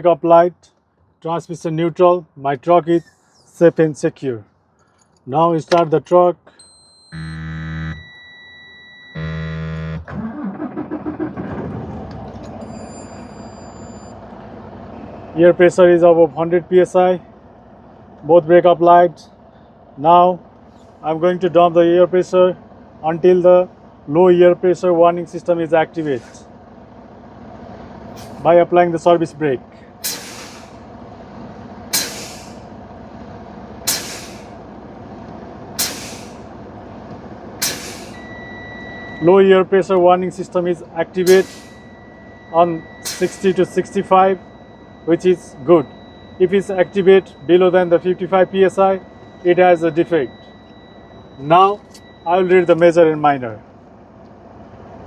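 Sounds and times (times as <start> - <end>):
diesel engine cranking and idling: 0.0 - 55.0
air brakes hissing: 3.0 - 3.6, 20.6 - 21.1, 26.0 - 26.6, 27.6 - 28.5, 29.7 - 32.9, 33.8 - 34.8, 35.6 - 36.7, 37.4 - 39.2, 41.2 - 47.4
dashboard warning buzzer: 6.6 - 10.2, 41.2 - 52.9.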